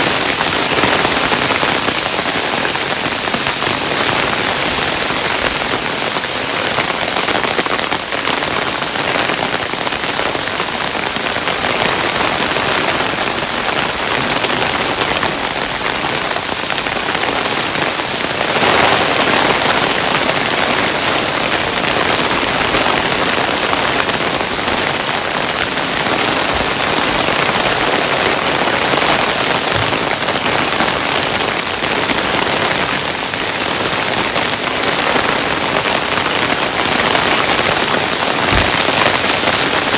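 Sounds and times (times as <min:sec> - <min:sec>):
hailstones falling: 0:34.6 - 0:39.9.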